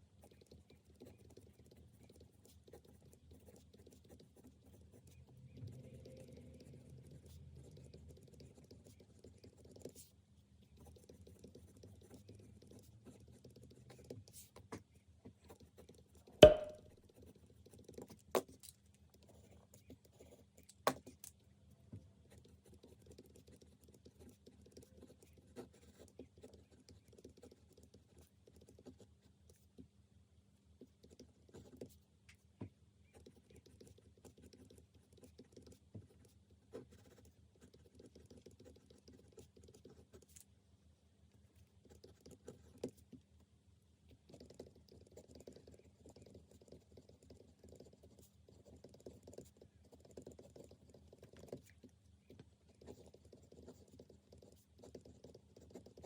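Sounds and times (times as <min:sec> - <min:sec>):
small ticks and taps: 0:16.4 - 0:16.8.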